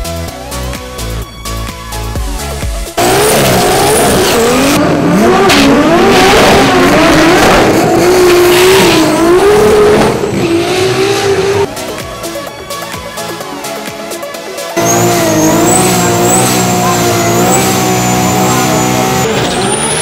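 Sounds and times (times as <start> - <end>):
dance music: 0.0 - 19.8
racing car engine revving: 3.0 - 11.7, 14.8 - 20.0.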